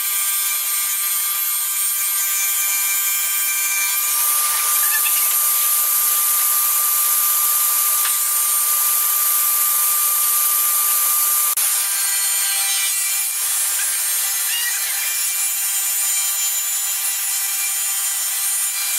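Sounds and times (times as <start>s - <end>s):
woodworking machine rushing noise: 2.3s - 15.6s
machine whine: 2.4s - 12.0s.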